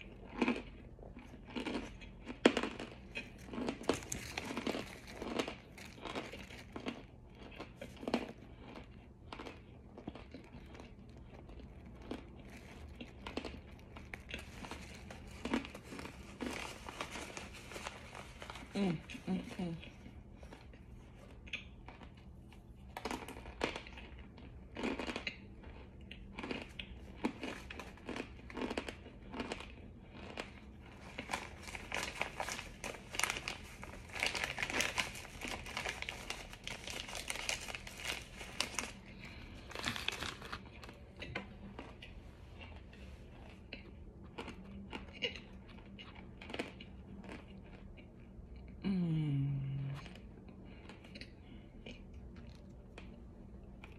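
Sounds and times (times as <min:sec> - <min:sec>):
crunching and chewing: 0:00.0 - 0:48.8, 0:49.8 - 0:53.9
person humming: 0:48.8 - 0:50.1.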